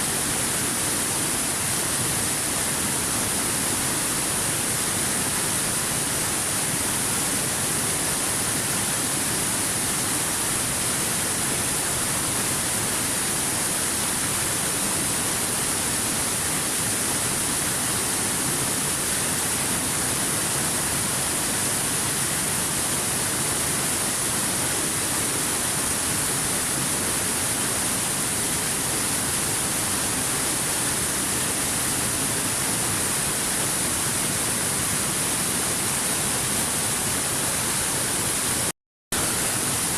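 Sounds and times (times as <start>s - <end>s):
waterfall crashing: 22.2s - 39.9s.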